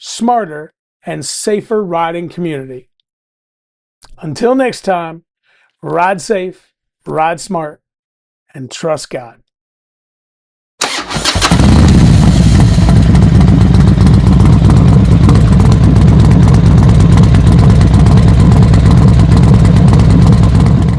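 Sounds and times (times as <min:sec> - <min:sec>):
motorcycle engine starting and running: 0:10.8 - 0:20.9.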